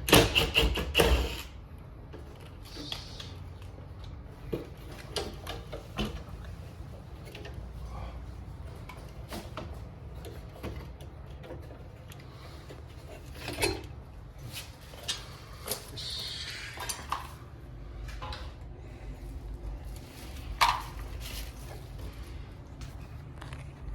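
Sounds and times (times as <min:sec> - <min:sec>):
hard parts clicking and knocking: 0:00.0 - 0:01.5, 0:08.6 - 0:14.0
low steady hum: 0:01.6 - 0:23.9.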